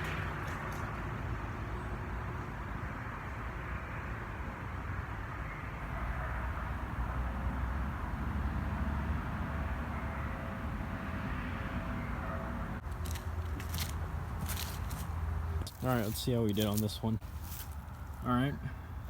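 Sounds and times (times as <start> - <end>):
distant vehicle rumble: 0.0 - 19.0.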